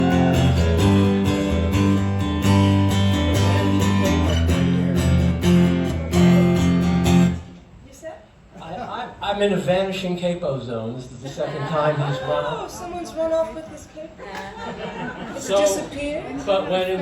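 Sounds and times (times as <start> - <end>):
low bass notes: 0.0 - 7.5
guitars strumming: 0.0 - 7.6.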